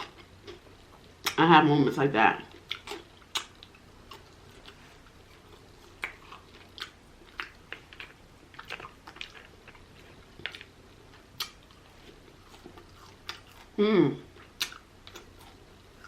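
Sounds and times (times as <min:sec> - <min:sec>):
person chewing mouth smacks: 0:02.5 - 0:15.6.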